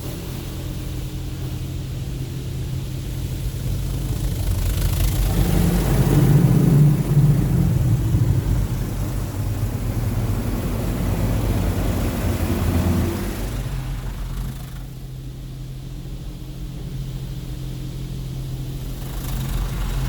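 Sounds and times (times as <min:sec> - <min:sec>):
car wash machinery hum: 0:00.0 - 0:20.0
water spray rushing: 0:04.2 - 0:15.1.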